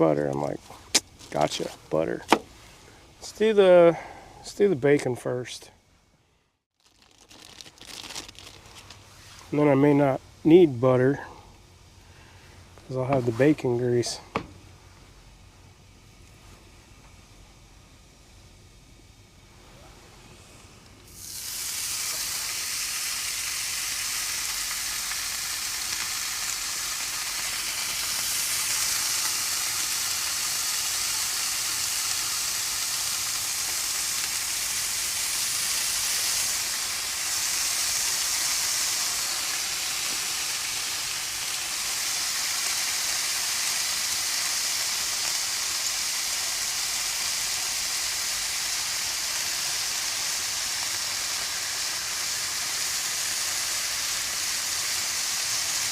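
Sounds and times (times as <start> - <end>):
bacon sizzling in a pan: 21.1 - 55.9.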